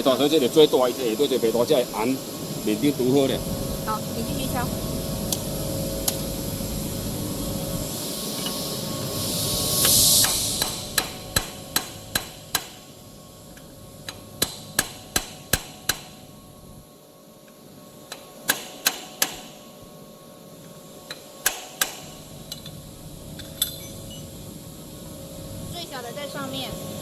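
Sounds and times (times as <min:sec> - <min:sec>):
hammer striking metal: 0:10.2 - 0:12.9, 0:14.1 - 0:16.2.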